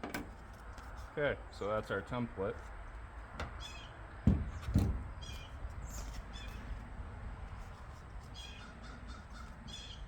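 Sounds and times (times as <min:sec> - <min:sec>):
dull thumps: 0:04.2 - 0:05.1
crows cawing: 0:08.5 - 0:10.0.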